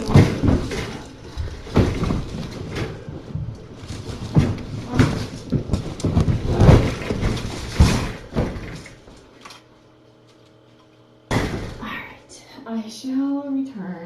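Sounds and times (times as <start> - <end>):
knocks and thuds of handling: 0.0 - 9.5, 11.3 - 12.0
faint steady hum: 0.0 - 14.0.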